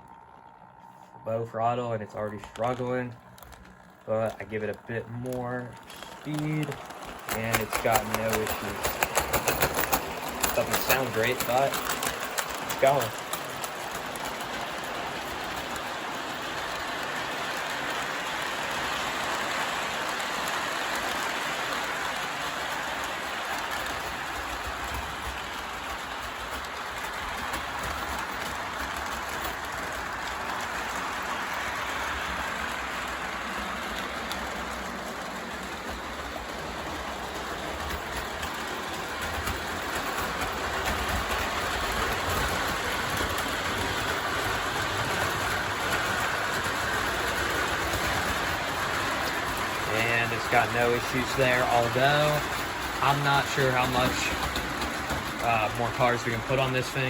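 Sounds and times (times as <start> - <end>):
model train rattling and humming: 0.0 - 57.0.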